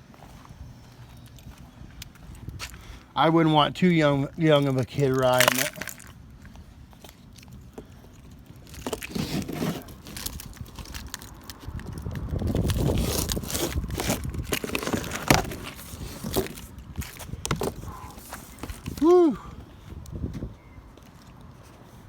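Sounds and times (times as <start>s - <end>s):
cardboard scraping and crinkling: 8.6s - 11.7s, 12.4s - 19.0s.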